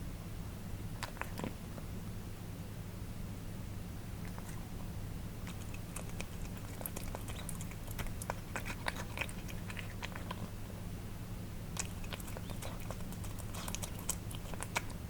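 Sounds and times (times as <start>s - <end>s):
steady low hum: 0.0s - 15.0s
cats chewing wet food: 1.0s - 1.8s, 4.2s - 10.9s, 11.6s - 15.0s.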